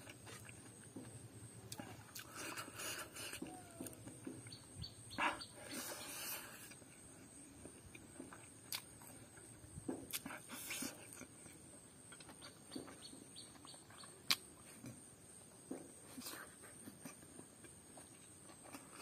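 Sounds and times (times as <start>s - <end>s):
chewing and lip smacking: 1.7s - 4.6s, 7.7s - 15.0s.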